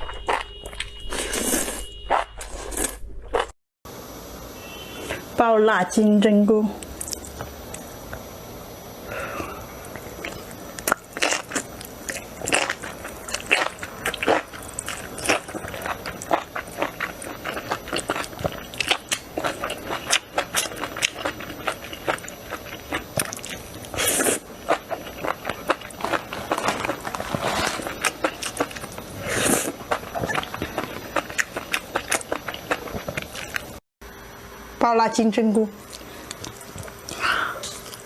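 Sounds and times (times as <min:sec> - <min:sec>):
close chewing crunches: 0:09.9 - 0:33.8, 0:35.8 - 0:38.0.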